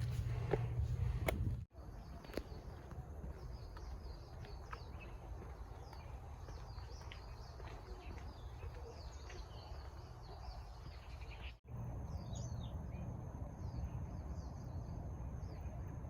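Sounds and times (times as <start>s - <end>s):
low rumble with sharp clicks: 0.0s - 1.7s
small birds chirping: 0.0s - 16.0s.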